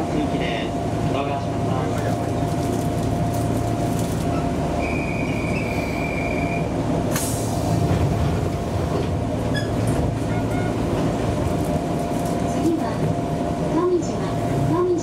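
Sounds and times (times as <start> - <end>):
train wheels and motors rumbling: 0.0 - 15.0
high wheel squeal: 4.3 - 6.7.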